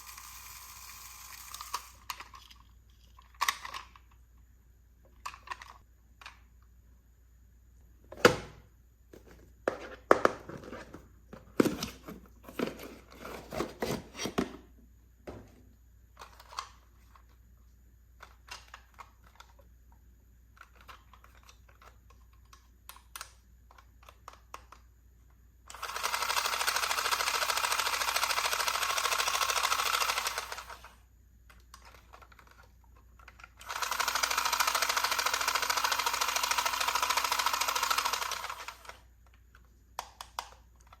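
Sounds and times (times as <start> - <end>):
plastic toy pieces clicking: 0.0 - 4.2.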